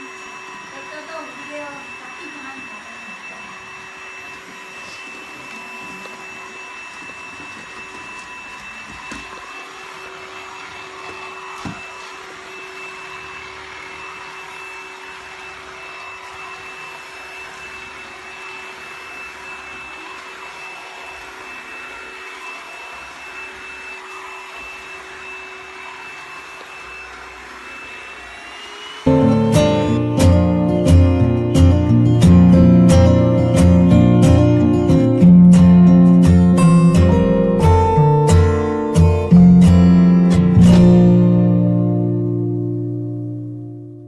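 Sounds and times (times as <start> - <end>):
stick vacuum running: 0.0 - 43.9.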